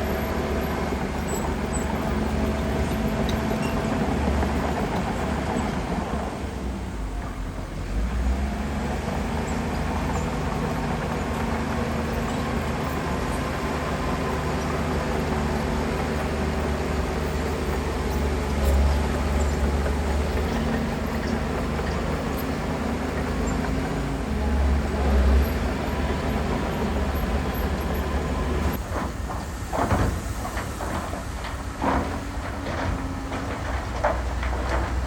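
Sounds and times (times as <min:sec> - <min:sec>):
heavy diesel engine running: 0:00.0 - 0:35.0
sharp knocks and clatter: 0:28.8 - 0:35.0.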